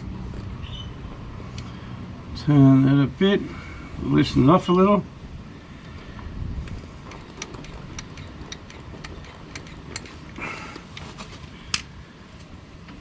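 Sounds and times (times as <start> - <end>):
vacuum brake bleeder: 5.8 - 11.9.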